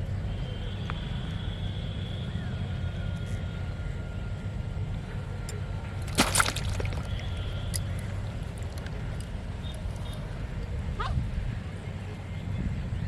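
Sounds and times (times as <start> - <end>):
splash in pond water: 6.1 - 7.4.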